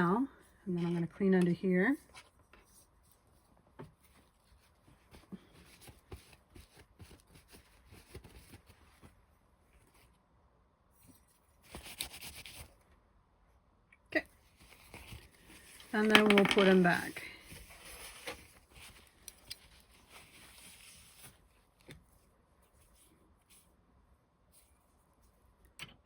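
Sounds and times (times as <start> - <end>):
brushing rustle: 14.5 - 23.8.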